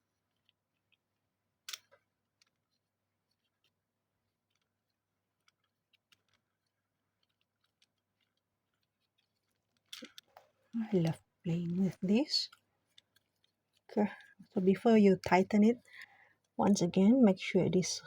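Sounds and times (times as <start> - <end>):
small metal parts clicking: 5.4 - 10.4.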